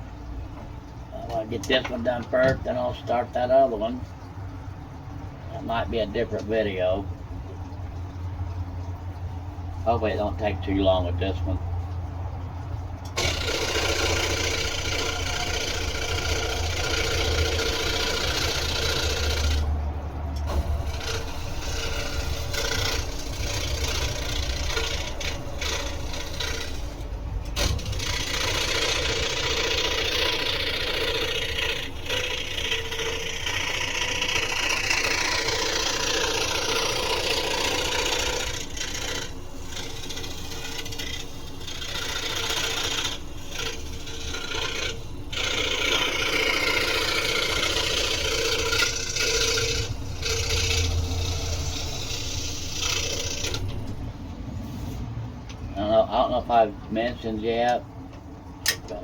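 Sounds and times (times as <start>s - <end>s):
scroll saw cutting wood: 1.2s - 4.2s, 13.1s - 55.0s.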